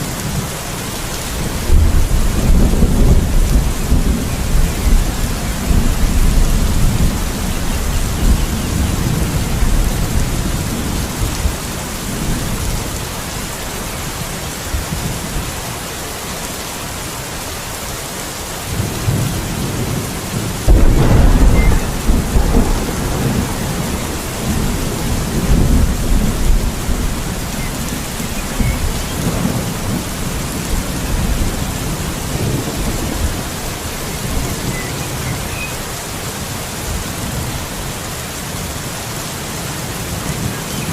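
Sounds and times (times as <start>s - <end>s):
steady rain: 0.0s - 40.9s
rolling thunder: 1.4s - 13.0s, 18.7s - 35.3s
loud thunderclap: 1.6s - 11.6s, 18.8s - 33.4s.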